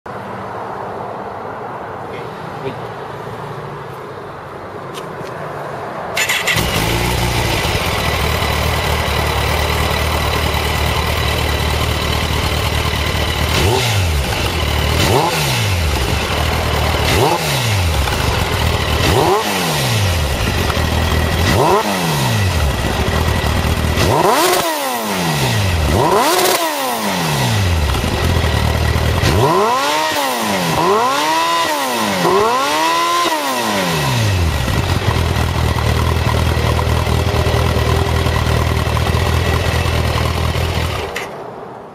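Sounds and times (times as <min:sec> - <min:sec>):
motorcycle engine idling: 0:06.2 - 0:29.6, 0:34.2 - 0:41.2
engine throttle revs: 0:06.2 - 0:41.4.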